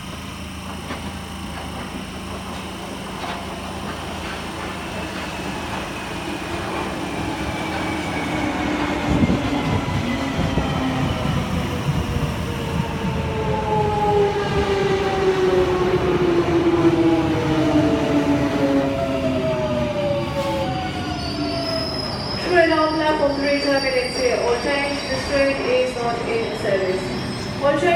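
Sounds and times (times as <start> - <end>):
train traction motor whine: 0.0 - 27.9
train wheel rumble: 0.0 - 27.9.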